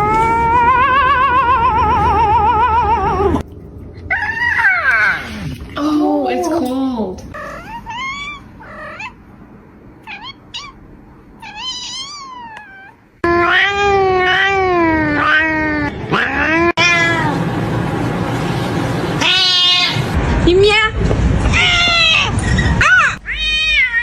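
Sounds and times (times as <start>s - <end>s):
cat meowing: 4.1s - 5.3s, 7.4s - 9.2s, 10.0s - 10.8s, 11.4s - 17.4s, 21.5s - 24.0s.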